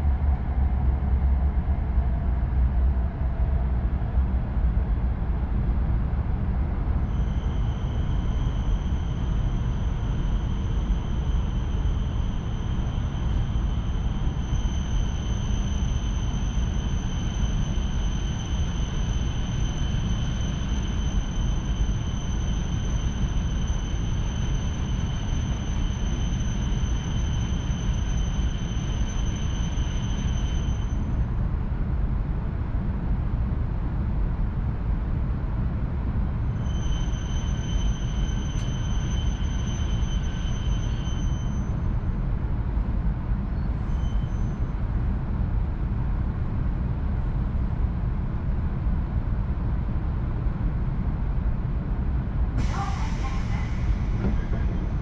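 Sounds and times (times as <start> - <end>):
train cabin rumble: 52.5 - 55.0.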